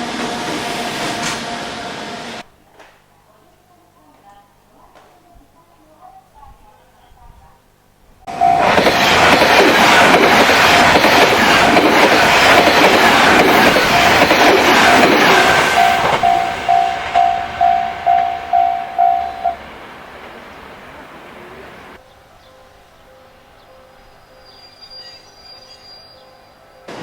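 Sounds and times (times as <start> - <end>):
pulsing warning tone: 8.3 - 9.4, 15.2 - 19.6
train wheels rattling past: 8.3 - 22.0.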